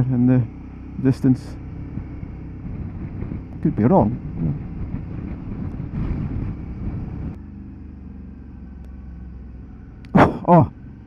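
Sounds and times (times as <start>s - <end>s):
motorcycle engine running: 0.0s - 11.0s
wind noise on microphone: 1.8s - 7.4s.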